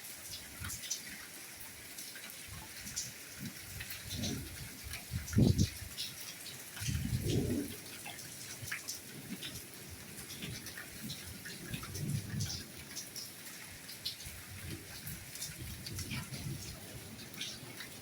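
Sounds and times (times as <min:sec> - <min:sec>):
soft steady rainfall: 0:00.0 - 0:18.0.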